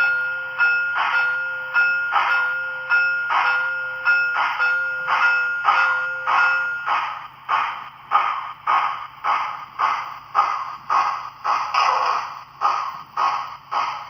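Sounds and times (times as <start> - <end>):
locomotive bell ringing: 0.0 - 7.2
steam exhaust chuffs: 0.0 - 14.0.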